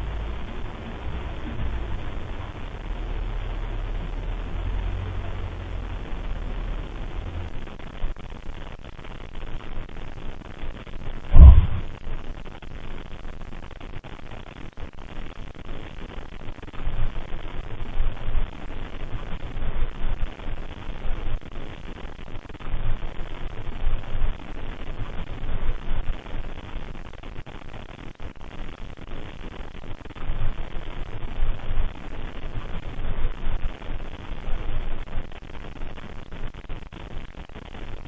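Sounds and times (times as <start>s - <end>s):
low rumbling: 0.0s - 8.1s, 11.3s - 12.0s
recording hiss: 0.0s - 38.0s.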